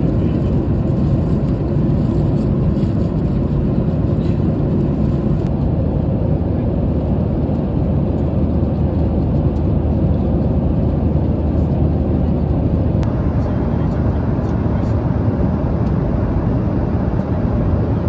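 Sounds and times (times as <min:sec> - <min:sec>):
aircraft engine noise: 0:00.0 - 0:18.0
airflow over fuselage: 0:00.0 - 0:18.0
constant low hum: 0:00.0 - 0:18.0.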